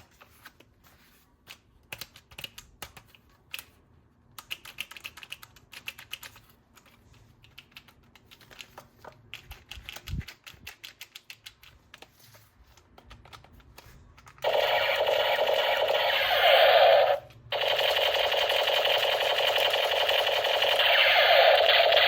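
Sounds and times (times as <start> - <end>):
toy gun rattling buzz: 14.4 - 22.0.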